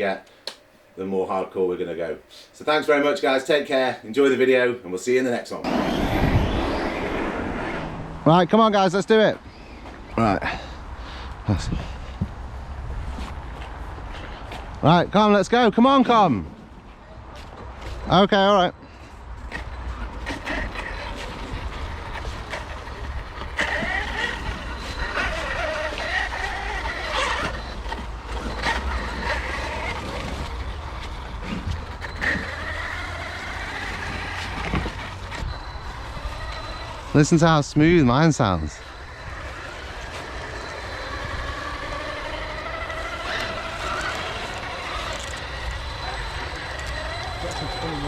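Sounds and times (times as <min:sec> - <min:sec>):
electric motor whine: 0:05.6 - 0:08.3, 0:20.1 - 0:48.0
rushing noise: 0:05.6 - 0:09.0.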